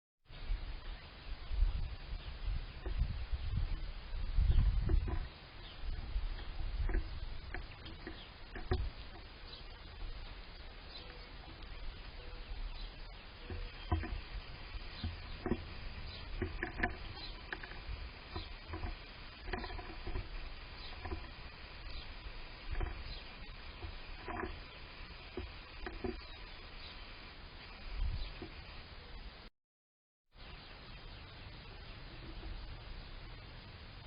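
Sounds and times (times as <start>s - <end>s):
low wind rumble: 0.3s - 29.5s
small ticks and pattering: 2.0s - 28.8s, 32.0s - 32.9s
bird chirps and calls: 2.2s - 25.2s.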